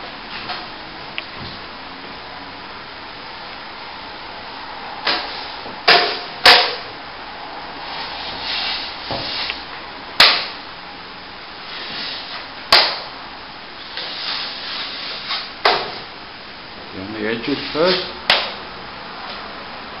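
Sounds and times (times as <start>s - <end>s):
trowel scraping strokes: 7.9s - 9.6s, 13.9s - 15.5s.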